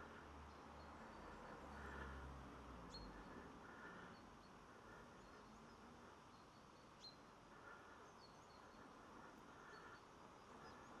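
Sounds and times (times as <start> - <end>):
faint outdoor ambience: 0.0 - 11.0
small birds chirping: 2.8 - 11.0.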